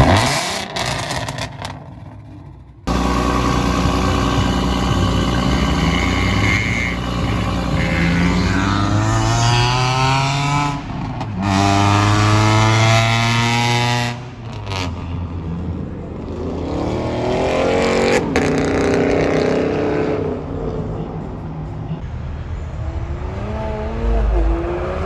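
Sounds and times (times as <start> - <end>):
car engine accelerating hard: 2.9 - 15.0, 22.8 - 25.0.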